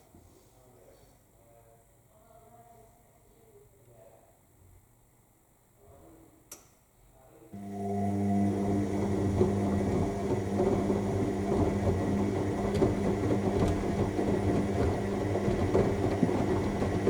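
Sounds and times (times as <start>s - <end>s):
rough churning of load: 7.6s - 17.0s
washing machine motor humming: 7.6s - 17.0s.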